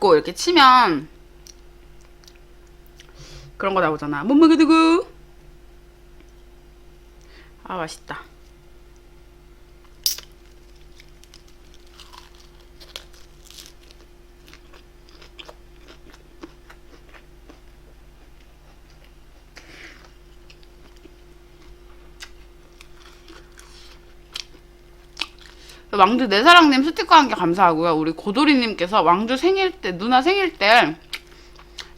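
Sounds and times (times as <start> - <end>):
faint steady hum: 0.0 - 31.9
person chewing food: 1.4 - 3.2, 10.1 - 25.8, 31.0 - 31.9.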